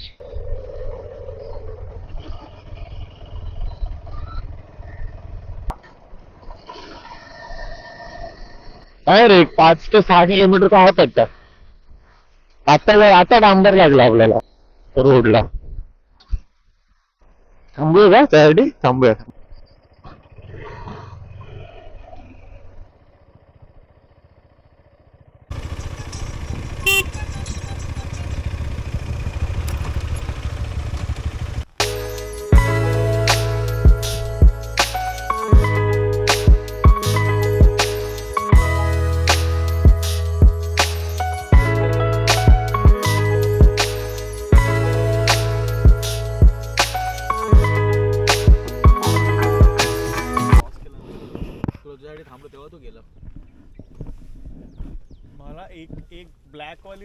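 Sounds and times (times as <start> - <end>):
motorcycle engine rumble: 0.9 - 6.7, 19.3 - 57.0
motorcycle horn toot: 25.6 - 30.8
wind on microphone: 50.6 - 51.9, 52.8 - 56.5.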